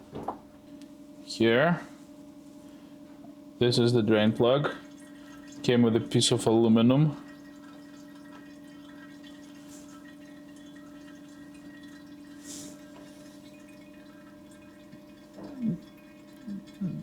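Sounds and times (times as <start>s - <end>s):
steady low hum: 0.0s - 17.0s
oil trickling and dripping: 4.6s - 17.0s.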